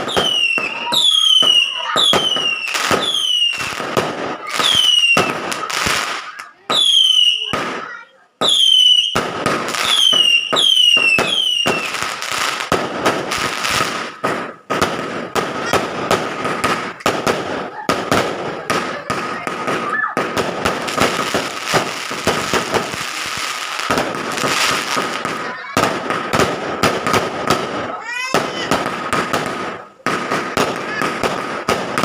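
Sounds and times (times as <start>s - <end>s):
firecrackers crackling and popping: 0.0s - 32.0s
firework whistles falling in pitch: 8.4s - 9.2s, 9.8s - 12.0s.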